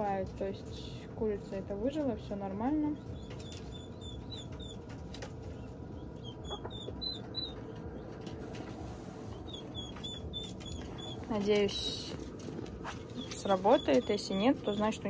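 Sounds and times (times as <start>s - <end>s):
bird peeping high chirps: 2.9s - 8.3s, 9.3s - 11.4s, 13.0s - 15.0s.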